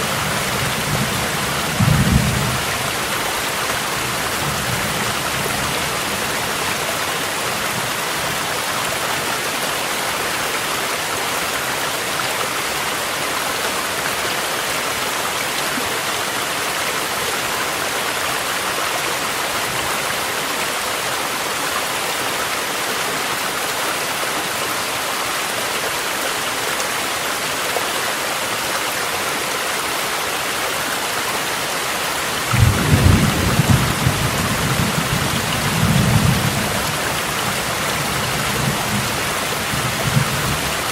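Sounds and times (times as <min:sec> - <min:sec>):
rushing stream water: 0:00.0 - 0:40.9
steady rain: 0:00.0 - 0:40.9.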